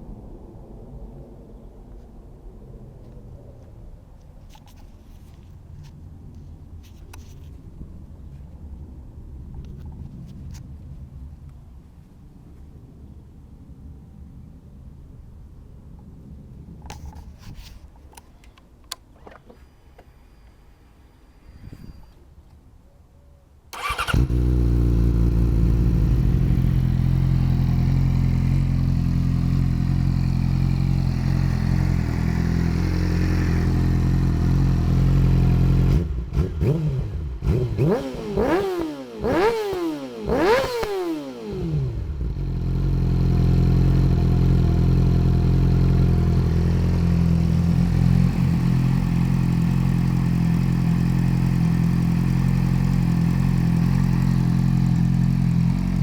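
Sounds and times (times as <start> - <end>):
motorcycle engine idling and revving: 23.7 - 56.0.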